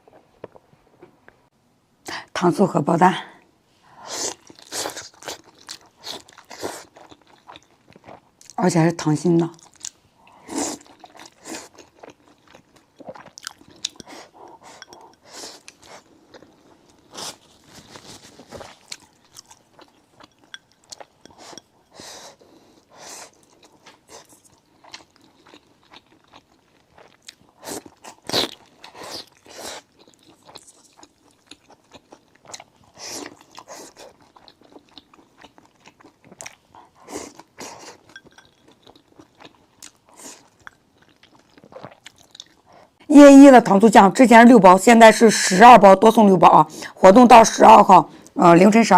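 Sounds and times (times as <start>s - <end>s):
person biting and chewing food: 10.7s - 21.6s.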